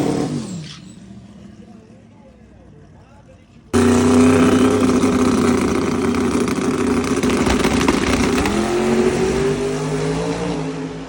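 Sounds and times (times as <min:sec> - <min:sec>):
racing car engine at full throttle: 0:03.8 - 0:11.0.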